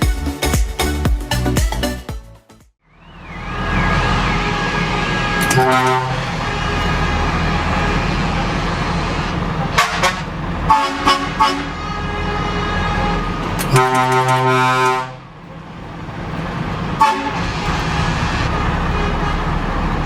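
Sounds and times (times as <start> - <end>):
truck engine running: 2.9 - 20.0
truck horn: 3.0 - 15.3, 17.0 - 20.0.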